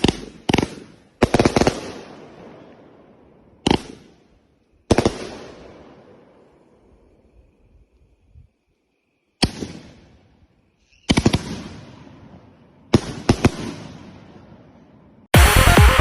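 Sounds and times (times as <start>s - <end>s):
fireworks bangs: 0.0s - 7.2s, 9.4s - 15.3s
loud electronic music: 15.4s - 16.0s.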